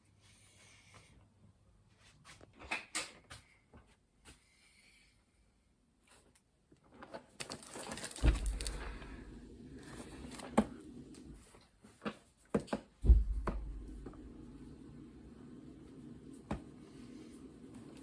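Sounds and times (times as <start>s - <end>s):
heavy thumps: 8.2s - 9.6s, 13.0s - 14.6s
low steady hum: 8.2s - 11.5s, 13.0s - 17.7s.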